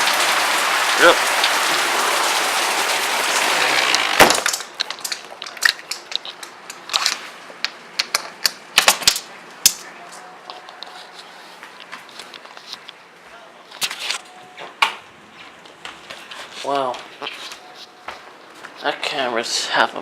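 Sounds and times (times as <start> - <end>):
heavy rain hissing: 0.0 - 4.8.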